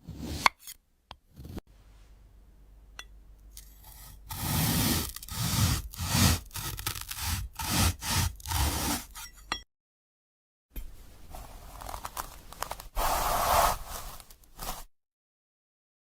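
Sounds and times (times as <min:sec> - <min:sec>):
knife scraping through fruit: 0:03.6 - 0:09.5, 0:11.4 - 0:14.9.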